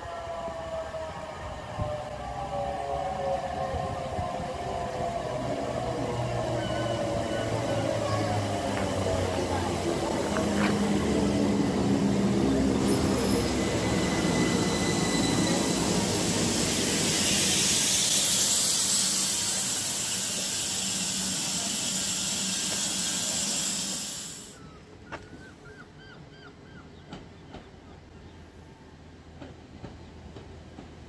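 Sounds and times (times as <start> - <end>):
train rushing past: 0.0 - 24.6.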